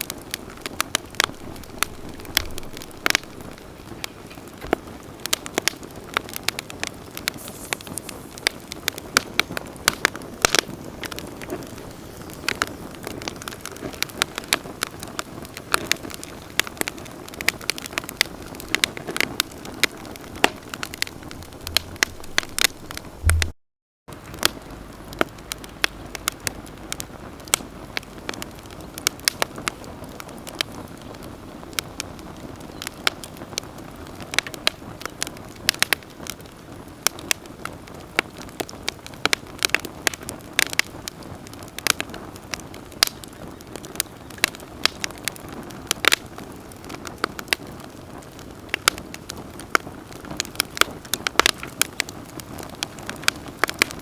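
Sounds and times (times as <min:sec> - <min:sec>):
hiss of flames: 0:00.0 - 0:23.5
campfire popping and crackling: 0:00.0 - 0:54.0.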